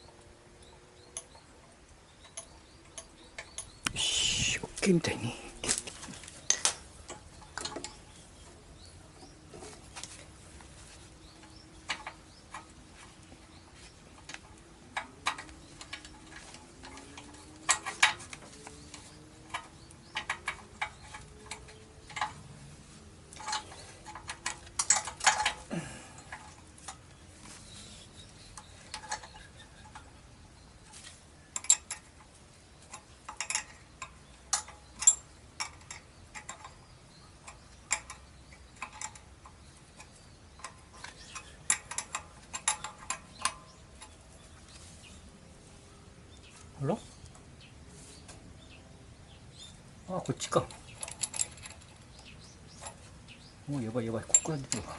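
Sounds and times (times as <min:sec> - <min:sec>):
clicks and taps on metal parts: 0:11.3 - 0:13.5, 0:14.1 - 0:22.6, 0:23.3 - 0:27.2, 0:31.5 - 0:44.3, 0:54.1 - 0:54.9.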